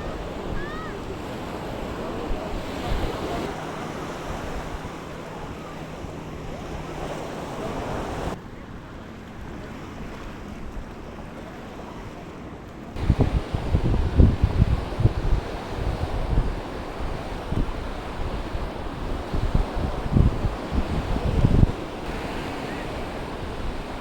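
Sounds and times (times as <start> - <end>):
sea waves washing onto beach: 0.0 - 24.0
wind buffeting microphone: 12.9 - 24.0.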